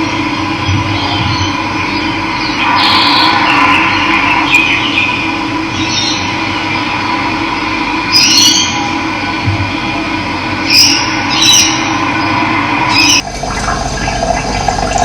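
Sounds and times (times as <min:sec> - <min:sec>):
birds chirping: 0:00.0 - 0:07.0, 0:08.0 - 0:09.1, 0:10.6 - 0:15.0
running water: 0:11.1 - 0:15.0.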